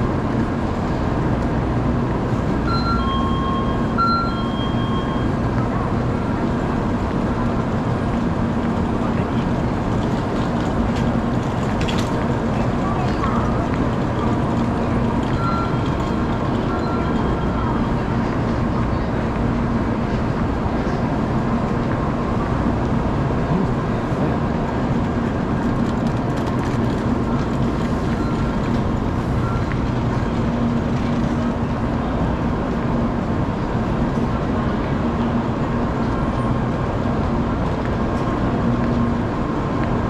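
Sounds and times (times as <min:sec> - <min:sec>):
station noise: 0:00.0 - 0:10.1, 0:12.0 - 0:26.1, 0:26.8 - 0:40.0
train humming at standstill: 0:00.0 - 0:40.0.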